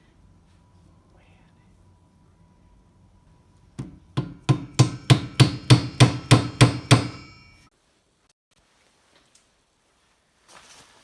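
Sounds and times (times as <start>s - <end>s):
hammer blows on ringing metal: 3.8s - 7.7s.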